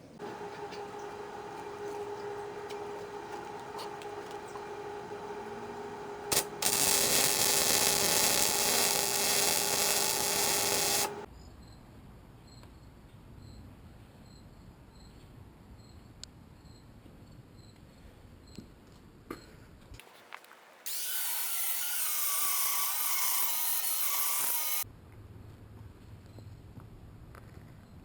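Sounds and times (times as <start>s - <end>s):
steady hum: 0.0s - 11.3s
welding arc hissing: 0.2s - 11.3s, 20.9s - 24.8s.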